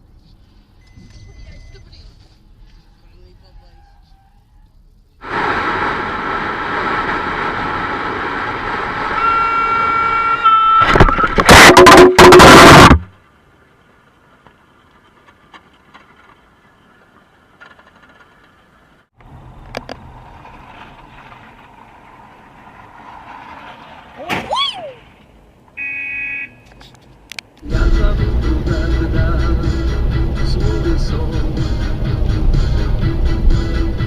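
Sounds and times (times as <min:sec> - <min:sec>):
vehicle driving noise: 0:00.0 - 0:34.0
horn-like tone: 0:09.1 - 0:13.0.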